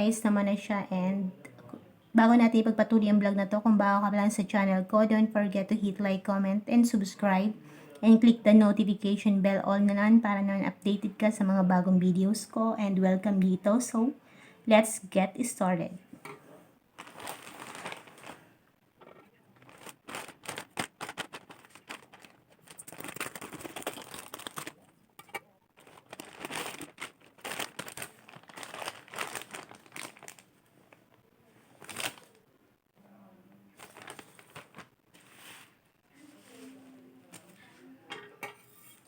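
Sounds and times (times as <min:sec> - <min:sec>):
packaging and bubble wrap crinkling: 0:16.9 - 0:32.4, 0:33.7 - 0:37.7
packaging ripping: 0:17.0 - 0:18.5, 0:19.6 - 0:24.9, 0:25.8 - 0:30.5, 0:31.8 - 0:32.4, 0:33.8 - 0:35.7.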